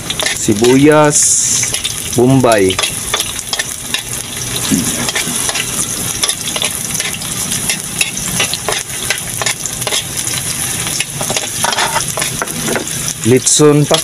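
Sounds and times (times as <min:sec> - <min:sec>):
garlic and onion sizzling in oil: 0:00.0 - 0:14.0
metal spoon scraping a pan: 0:00.1 - 0:02.0, 0:02.7 - 0:10.2, 0:10.9 - 0:13.0.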